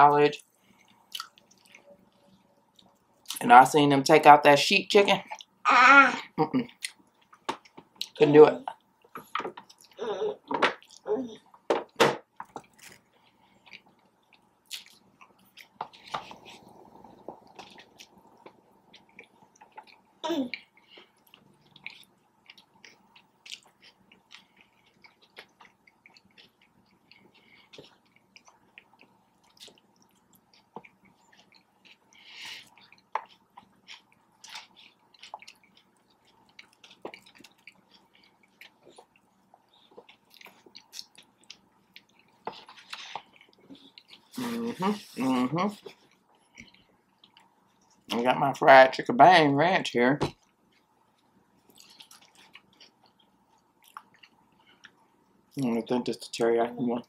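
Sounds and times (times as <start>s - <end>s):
person chewing sandwich: 0.4s - 3.4s, 8.8s - 10.0s, 12.3s - 48.1s, 50.4s - 55.6s
mouth clicks and smacks: 1.1s - 1.8s.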